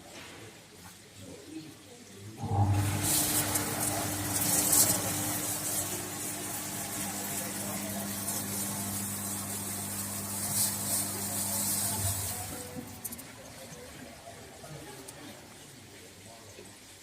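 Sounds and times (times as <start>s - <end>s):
shower spray hissing: 2.4s - 13.8s.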